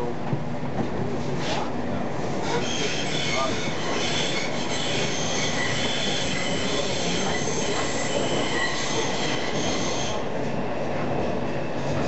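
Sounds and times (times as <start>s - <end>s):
tram rumbling on rails: 0.0s - 12.0s
high wheel squeal: 2.6s - 10.2s.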